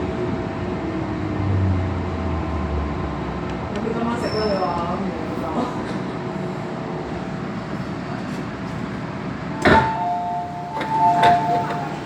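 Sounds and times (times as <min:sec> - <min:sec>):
metro car hum: 0:00.0 - 0:12.0
sharp clunk: 0:09.6 - 0:10.0.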